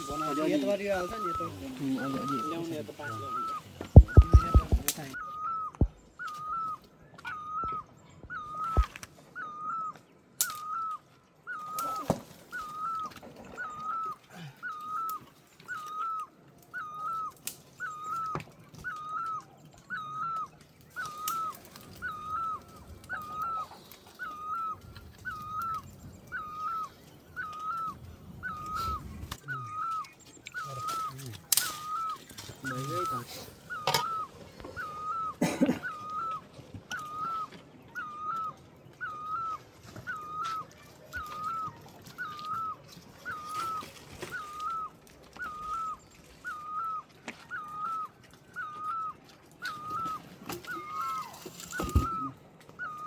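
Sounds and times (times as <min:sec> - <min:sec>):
bird repeating short call: 0:00.0 - 0:09.7.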